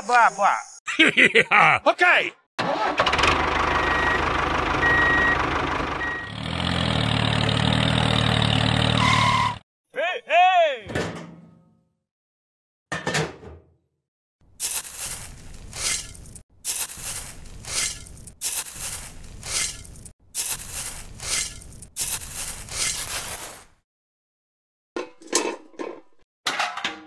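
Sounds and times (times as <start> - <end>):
spoon scraping through gravel: 14.5 - 23.8.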